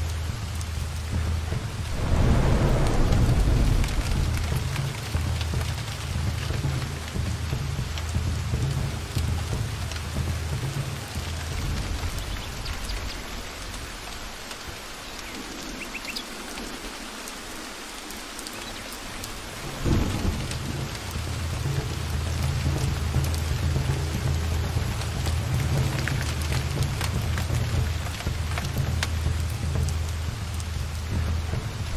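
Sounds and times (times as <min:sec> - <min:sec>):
rain falling in forest: 0:00.0 - 0:31.9
rolling thunder: 0:01.2 - 0:07.4, 0:19.5 - 0:28.6
loud thunder clap: 0:01.6 - 0:06.9.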